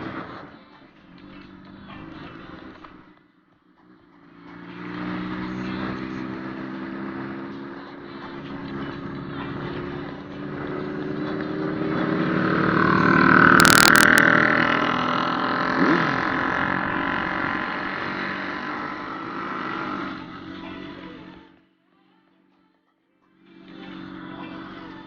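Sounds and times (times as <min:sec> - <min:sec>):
motorcycle engine running: 0:01.0 - 0:03.2, 0:03.8 - 0:21.5.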